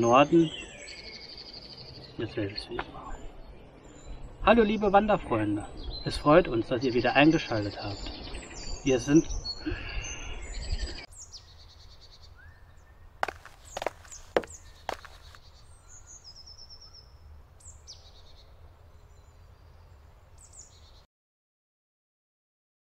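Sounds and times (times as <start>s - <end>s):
small birds chirping: 0.0s - 21.1s.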